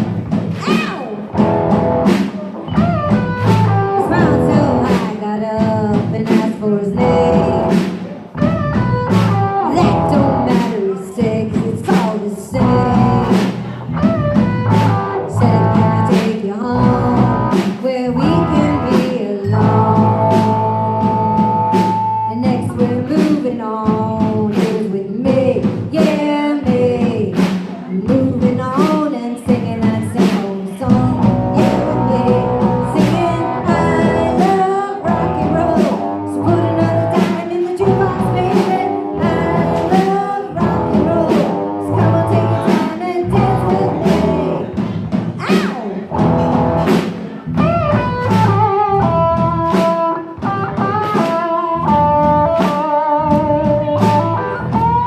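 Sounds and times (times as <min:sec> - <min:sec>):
bass: 0:00.0 - 0:55.0
drum beat: 0:00.0 - 0:55.0
electric guitar lines: 0:01.1 - 0:05.2, 0:06.9 - 0:10.9.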